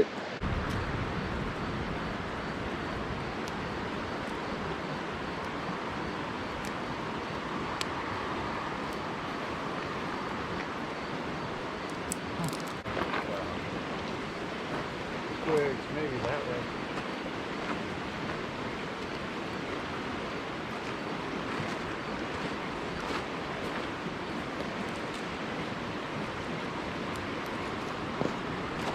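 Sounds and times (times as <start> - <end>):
fire pops: 0.4 - 1.0, 11.9 - 13.4
campfire crackling: 0.4 - 28.9.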